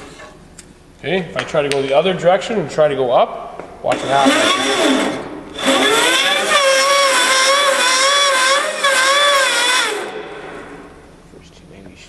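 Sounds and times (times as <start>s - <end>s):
bandsaw whine: 3.9s - 11.2s.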